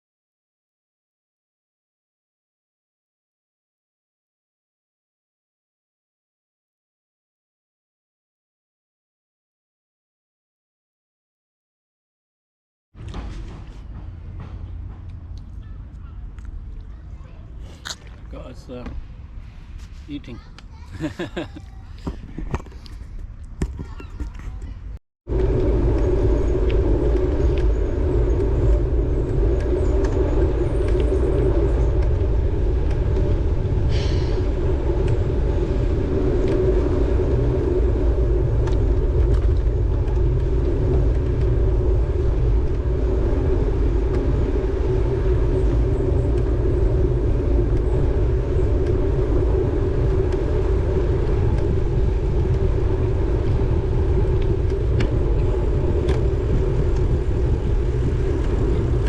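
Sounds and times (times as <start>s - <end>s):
wind buffeting microphone: 13.1s - 59.0s.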